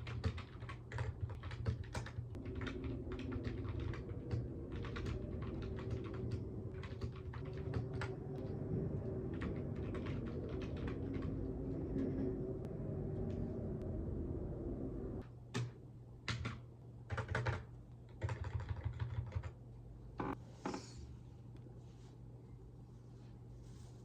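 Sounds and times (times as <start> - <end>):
keyboard typing: 0.0 - 12.5, 15.5 - 19.6
faint low hum: 0.0 - 24.0.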